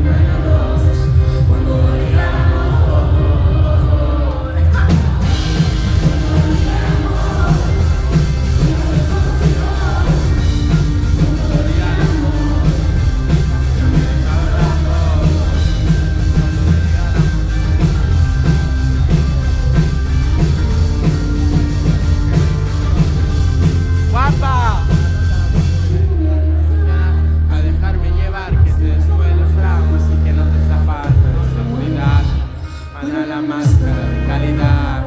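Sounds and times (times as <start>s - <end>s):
drum kit beat: 0.0s - 26.2s
live pop-rock band playing: 0.0s - 35.0s
person singing: 0.0s - 35.0s.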